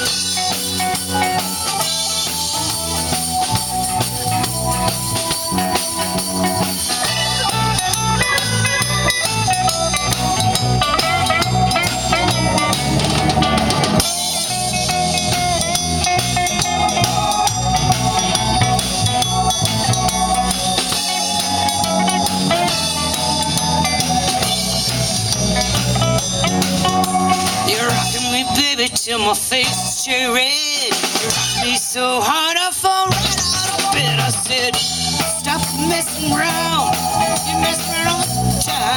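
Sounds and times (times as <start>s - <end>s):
guitar lead with bending notes: 0.0s - 30.4s, 32.9s - 38.9s
drum kit beat: 0.0s - 38.9s.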